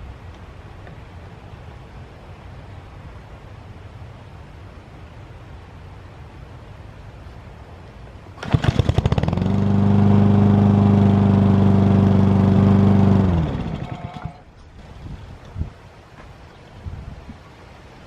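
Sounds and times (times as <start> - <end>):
lawn mower engine running: 8.4 - 15.0.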